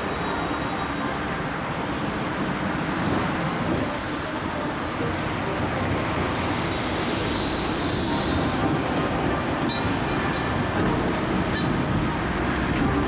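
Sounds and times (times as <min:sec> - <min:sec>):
tram wheels squealing: 0:00.0 - 0:01.2, 0:06.3 - 0:11.8
electric tram rumbling: 0:00.0 - 0:13.0.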